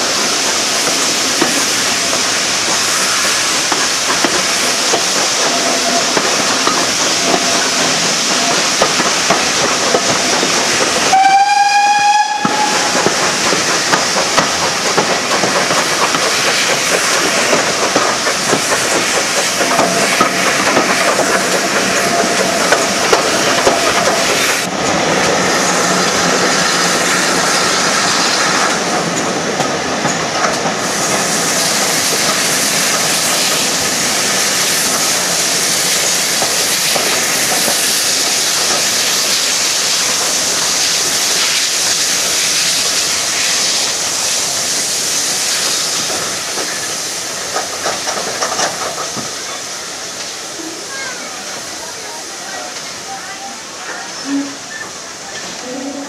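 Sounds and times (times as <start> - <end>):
train rumbling along line: 0.0 - 56.0
short train whistle: 11.1 - 13.0, 54.2 - 54.8
wheels clattering over rail joints: 45.6 - 49.6.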